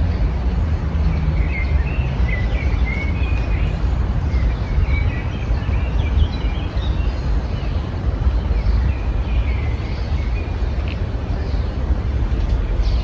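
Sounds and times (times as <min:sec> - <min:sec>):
steady low rumble: 0:00.0 - 0:05.2
songbirds chirping: 0:00.0 - 0:13.0.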